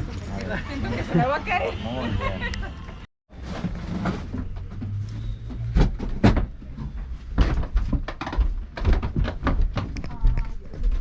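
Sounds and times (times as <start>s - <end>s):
irregular knocks and thumps: 3.6s - 11.0s.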